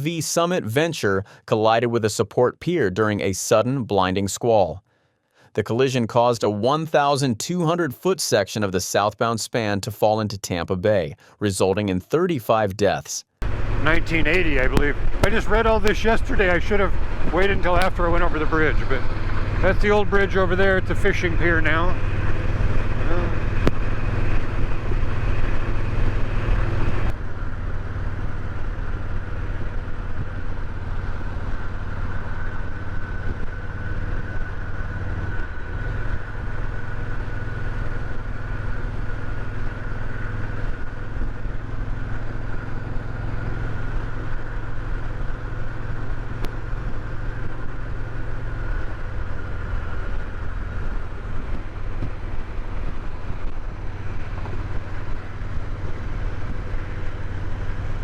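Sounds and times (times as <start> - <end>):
motorcycle engine running: 13.4 - 58.0.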